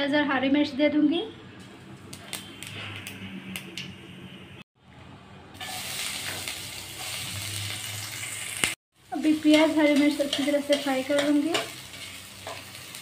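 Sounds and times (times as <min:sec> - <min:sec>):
onion sizzling in oil: 0:05.6 - 0:13.0.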